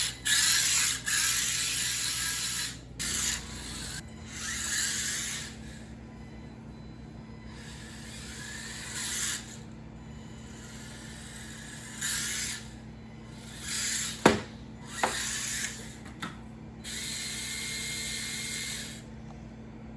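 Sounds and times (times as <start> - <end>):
small electric motor whining: 0.0 - 19.2
sharp knocks: 14.2 - 15.2.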